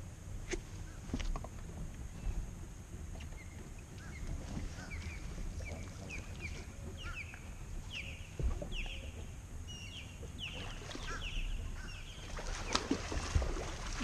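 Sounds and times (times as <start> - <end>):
steady low rumble: 0.0 - 12.3
birds chirping: 2.1 - 13.2.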